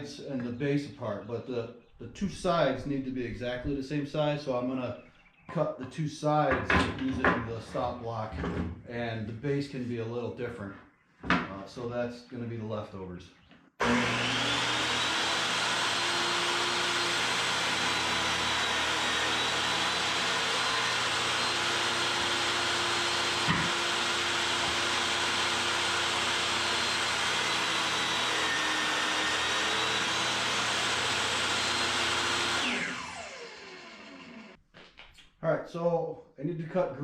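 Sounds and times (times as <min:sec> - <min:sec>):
table saw whining: 0:13.8 - 0:34.6.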